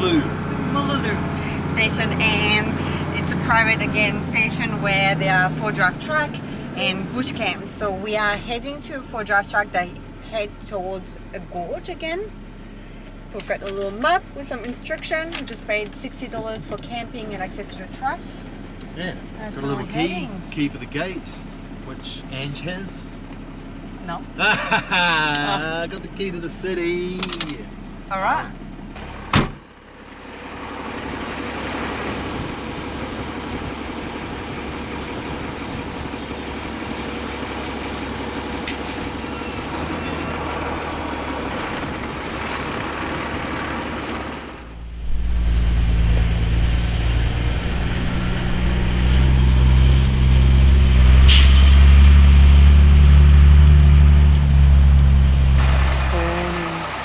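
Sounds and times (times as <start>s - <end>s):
truck diesel engine rumble: 0.0s - 57.0s.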